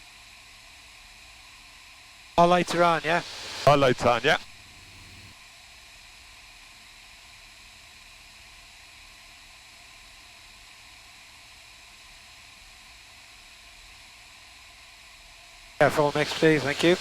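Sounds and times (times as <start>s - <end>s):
faint hiss: 2.4s - 5.3s, 15.8s - 17.0s
low hum: 2.4s - 5.4s.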